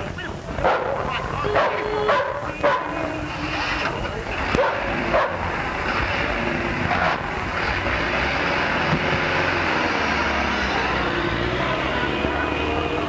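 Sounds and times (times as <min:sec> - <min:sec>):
constant hiss: 0:00.0 - 0:11.0
dog bark: 0:00.6 - 0:01.0, 0:01.6 - 0:02.9, 0:04.6 - 0:05.4
car engine running: 0:02.1 - 0:13.0.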